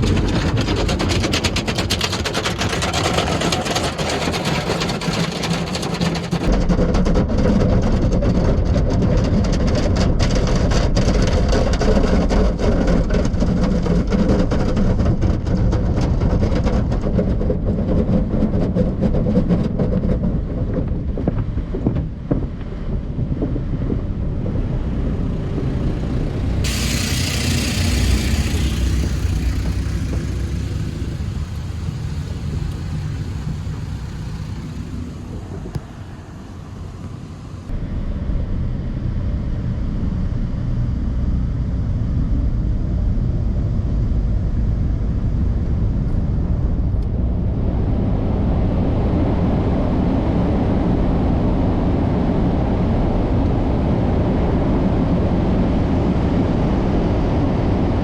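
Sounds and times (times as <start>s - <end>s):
car wash equipment rumbling: 0.0s - 6.6s, 22.2s - 37.8s
sudden hiss: 26.7s - 36.9s.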